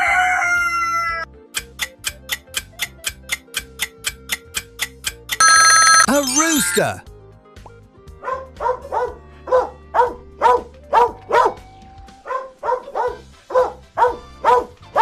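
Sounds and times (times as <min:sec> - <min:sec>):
soft background music: 0:07.1 - 0:15.0
dog barking: 0:08.2 - 0:11.6, 0:12.2 - 0:15.0.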